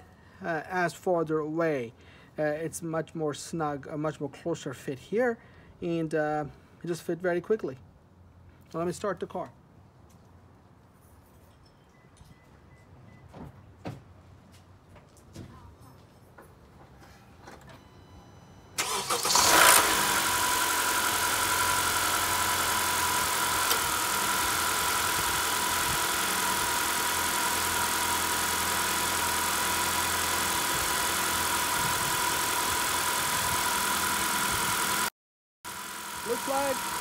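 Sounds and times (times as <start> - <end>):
car engine cranking and idling: 18.8 - 35.1, 35.7 - 37.0.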